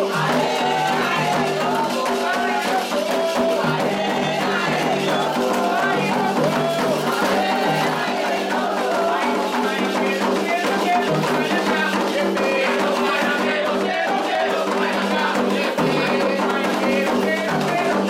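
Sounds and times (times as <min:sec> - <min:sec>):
hand drums: 0:00.0 - 0:18.0
voices singing a chant: 0:00.0 - 0:18.0.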